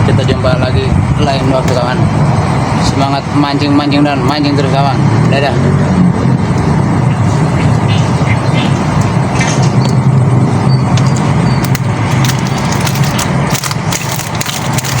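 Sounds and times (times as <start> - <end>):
sharp clicks: 10.8 - 15.0.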